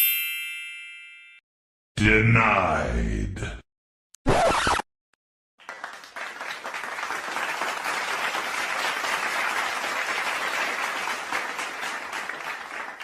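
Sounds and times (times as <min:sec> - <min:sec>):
crowd applause: 0:05.6 - 0:13.0.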